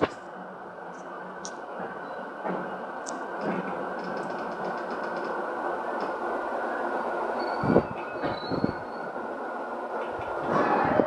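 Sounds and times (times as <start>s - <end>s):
train wheels and motors rumbling: 0.0s - 11.0s.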